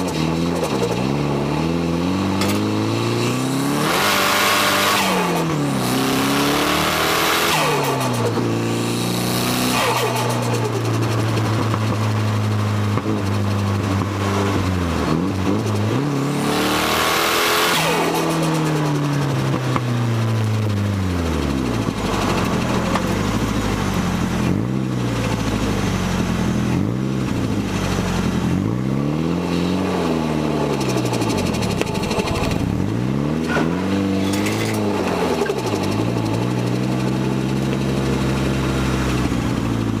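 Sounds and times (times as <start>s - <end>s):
car engine revving: 0.0s - 40.0s.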